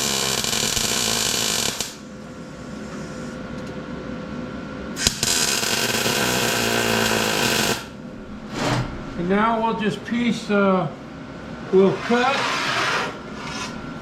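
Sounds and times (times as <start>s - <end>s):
welder crackling buzz: 0.0s - 2.1s, 5.0s - 8.0s.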